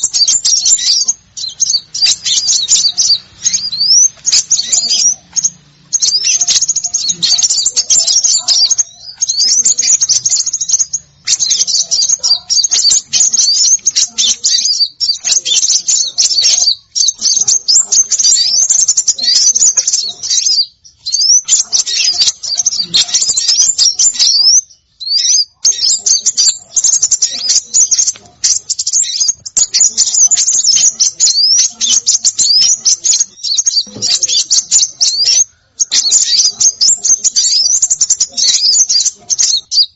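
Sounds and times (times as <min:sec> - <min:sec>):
small songbirds chirping rapidly: 0:00.0 - 0:39.9.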